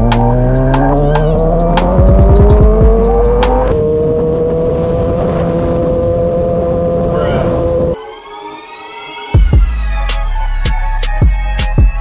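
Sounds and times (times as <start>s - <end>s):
music with ticking beat: 0.0s - 3.7s, 9.3s - 12.0s
vehicle engine accelerating: 0.0s - 8.0s.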